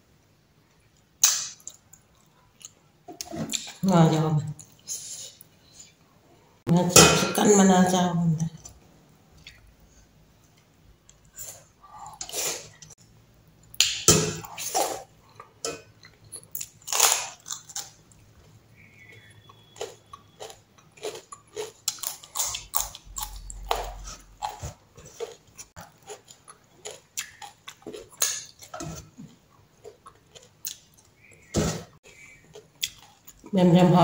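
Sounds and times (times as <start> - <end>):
crunchy food chewing: 16.0 - 31.4, 32.0 - 33.5.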